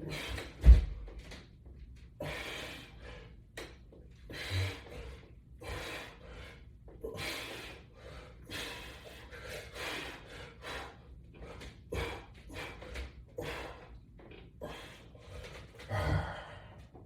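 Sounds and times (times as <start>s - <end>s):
man breathing hard: 0.0s - 0.8s, 2.2s - 3.5s, 4.2s - 14.0s, 14.6s - 17.0s.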